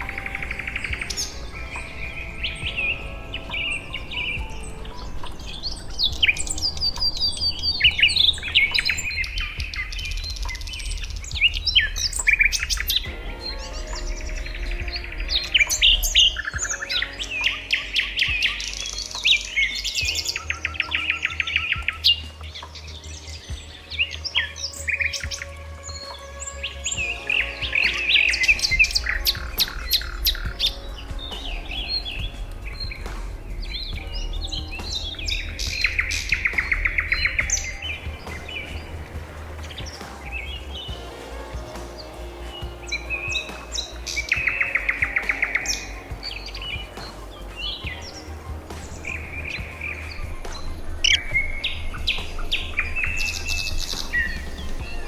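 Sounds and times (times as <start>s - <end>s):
bird trill: 0.0s - 55.0s
low steady hum: 0.0s - 55.0s
songbirds chirping and calling: 0.0s - 55.0s
low steady rumble: 25.6s - 55.0s.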